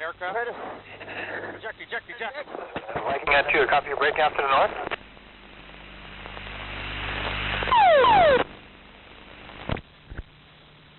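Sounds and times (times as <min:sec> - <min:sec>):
loud burst with falling tones: 0:07.7 - 0:08.4.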